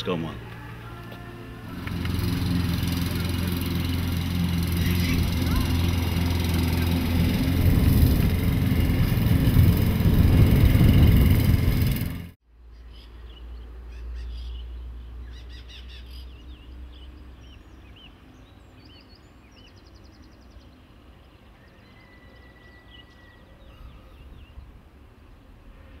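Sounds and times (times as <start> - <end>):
low rumble: 0.4 - 12.4
birds singing and calling: 12.7 - 24.8.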